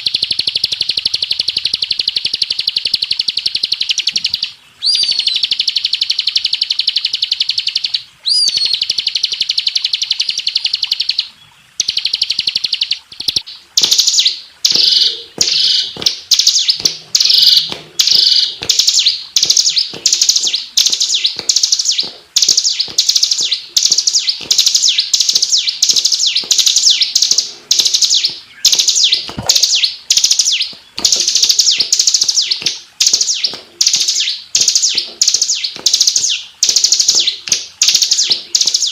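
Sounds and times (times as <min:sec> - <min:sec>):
bird singing high trill: 0:00.0 - 0:38.9
bird chattering phrases: 0:11.8 - 0:38.9.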